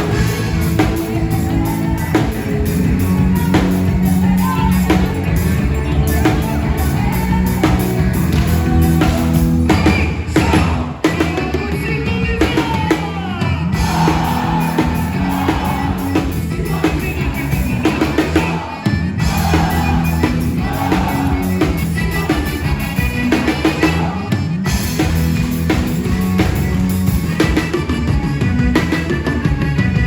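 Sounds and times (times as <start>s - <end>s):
repeating bass line: 0.0s - 11.5s, 13.7s - 30.0s
band music: 0.0s - 30.0s
drum kit: 0.0s - 30.0s.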